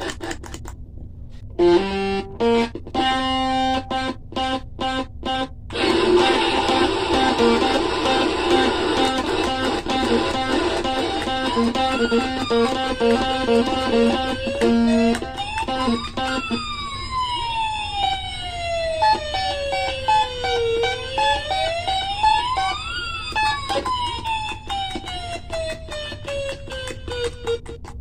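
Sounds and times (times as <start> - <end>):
siren-like electronic tone sweeping: 5.8 - 26.6.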